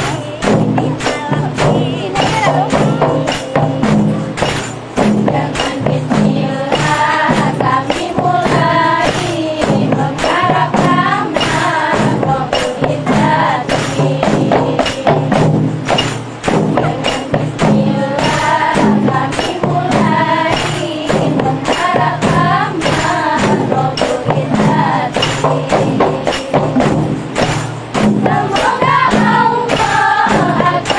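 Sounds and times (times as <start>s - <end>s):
person singing: 0.0s - 4.4s
frame drums playing: 0.0s - 30.9s.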